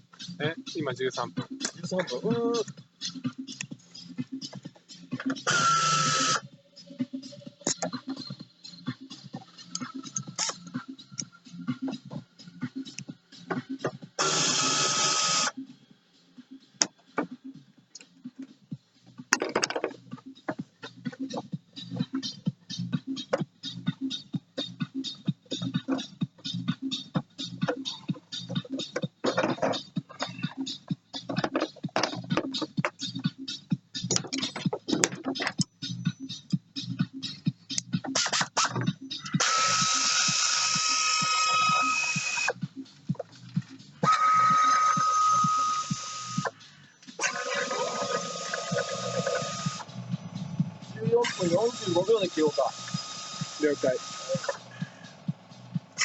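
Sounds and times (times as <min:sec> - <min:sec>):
rattling clicks: 0:34.0 - 0:35.7
clinks of hand tools and metal: 0:34.1 - 0:35.7
compressed air tool hissing: 0:39.4 - 0:42.5.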